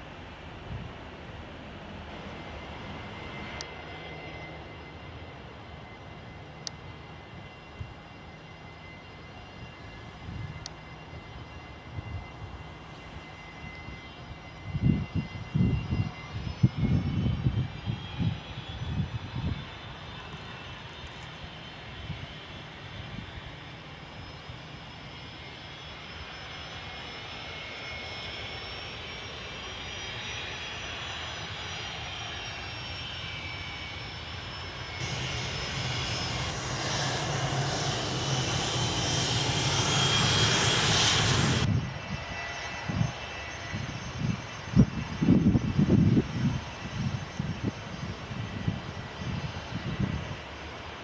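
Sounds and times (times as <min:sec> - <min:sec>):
airliner engines whining: 0:00.0 - 0:51.0
loud rushing noise: 0:35.0 - 0:41.7.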